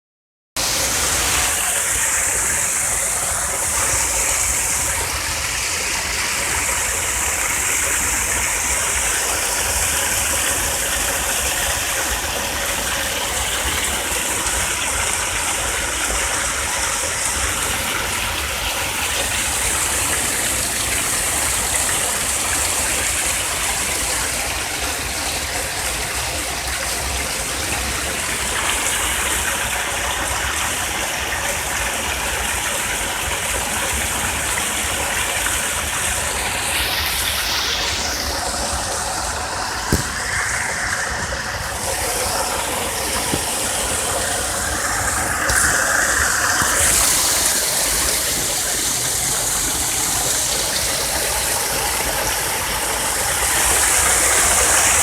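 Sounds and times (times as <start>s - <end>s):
running water rushing: 0.6s - 55.0s
high-pitched hiss: 36.9s - 55.0s.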